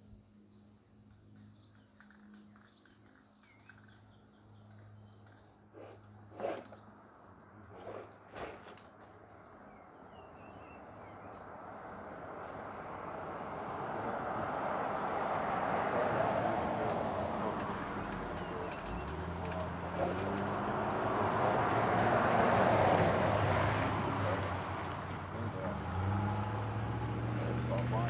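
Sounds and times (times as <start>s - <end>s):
faint insect hiss: 0.0s - 7.3s, 9.3s - 19.4s
faint bird chirps: 9.6s - 11.4s
approaching vehicle rushing: 11.3s - 28.0s.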